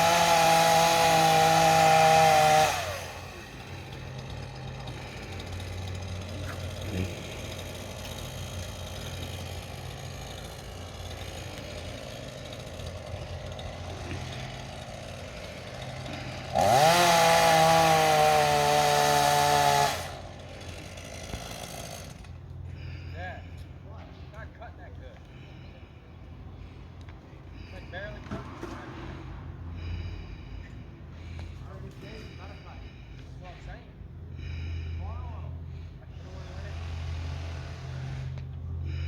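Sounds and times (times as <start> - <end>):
chainsaw idling and revving: 0.0 - 23.4, 34.4 - 39.0.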